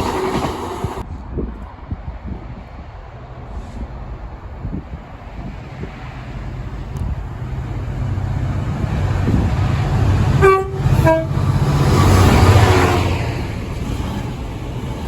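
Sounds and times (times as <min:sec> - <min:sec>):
low train engine rumble: 0:00.0 - 0:15.0
train two-tone horn: 0:10.4 - 0:13.3.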